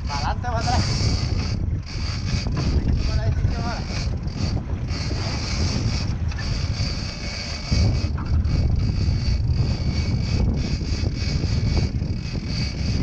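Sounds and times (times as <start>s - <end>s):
boat engine running: 0.0s - 13.0s
wind buffeting microphone: 0.0s - 13.0s.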